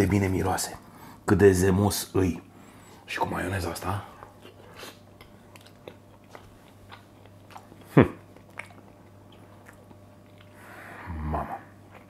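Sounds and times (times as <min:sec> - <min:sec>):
man chewing: 0:04.1 - 0:12.0.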